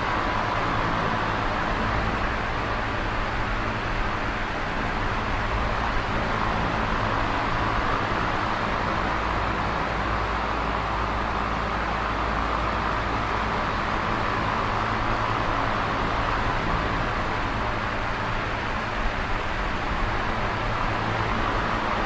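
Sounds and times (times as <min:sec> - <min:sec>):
electric fan whoosh: 0:00.0 - 0:22.0.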